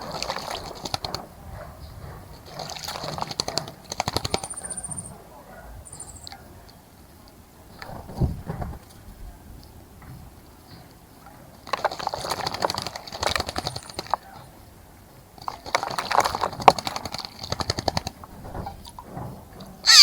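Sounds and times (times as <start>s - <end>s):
bird splashing in water: 0.0s - 1.2s, 2.5s - 4.5s, 11.6s - 14.2s, 15.4s - 19.1s.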